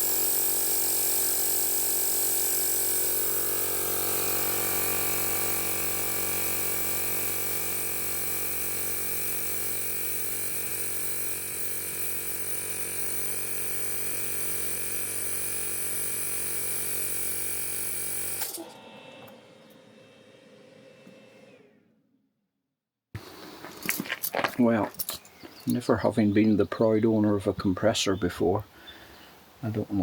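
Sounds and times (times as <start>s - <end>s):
air compressor running: 0.0s - 22.0s.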